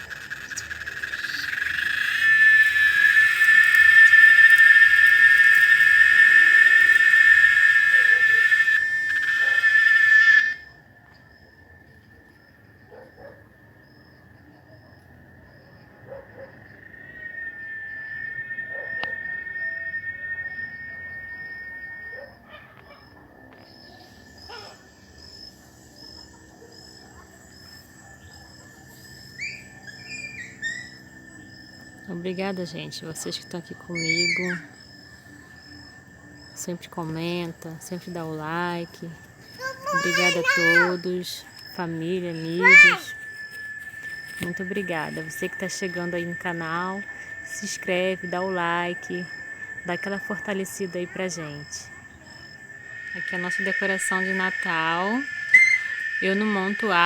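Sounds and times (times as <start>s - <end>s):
rising bird-like chirps: 0.0s - 10.8s, 15.6s - 25.4s, 28.6s - 32.6s, 33.2s - 57.0s
cicada buzzing: 0.0s - 13.0s, 13.6s - 57.0s
short high chirps: 42.3s - 46.4s.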